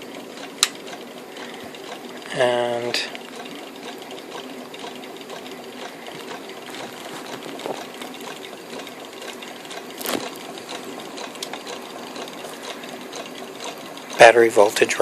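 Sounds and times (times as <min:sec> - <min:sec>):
sharp click: 0:00.6 - 0:00.8.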